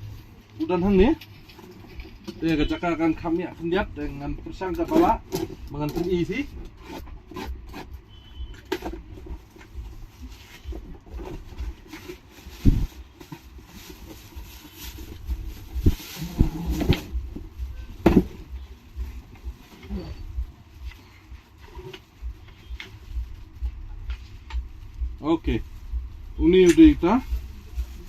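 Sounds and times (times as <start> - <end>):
steady low rumble: 8.9 - 28.0.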